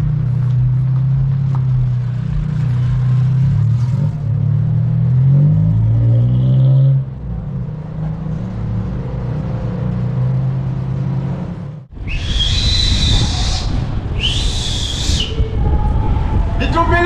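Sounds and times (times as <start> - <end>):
car engine revving: 0.0 - 11.9
loud high whistling: 12.0 - 16.6.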